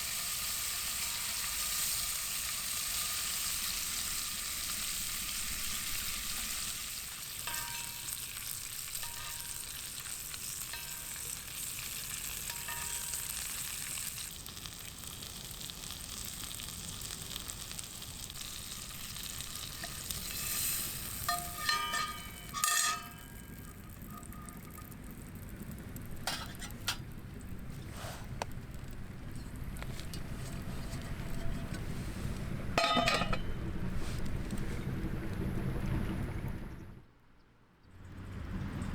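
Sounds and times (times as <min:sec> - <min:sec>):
steak sizzling in a pan: 0:00.0 - 0:24.8
tongs clinking on a pan: 0:07.3 - 0:14.2, 0:19.7 - 0:24.9, 0:26.2 - 0:27.0, 0:32.8 - 0:33.7
ringing metallic clinks: 0:07.5 - 0:08.4, 0:21.3 - 0:23.6, 0:32.8 - 0:33.6.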